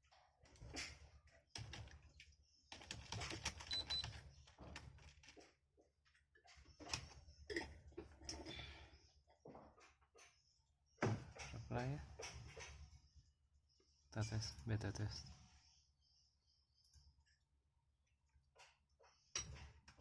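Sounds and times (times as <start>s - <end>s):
computer keyboard typing: 2.7s - 5.4s.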